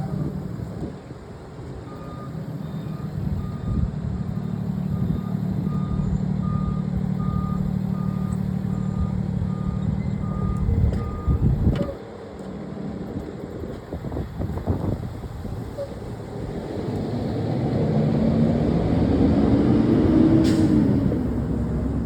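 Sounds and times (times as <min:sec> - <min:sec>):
vehicle engine running: 0:00.0 - 0:22.0
reversing alarm beeping: 0:01.9 - 0:03.9, 0:04.9 - 0:12.0.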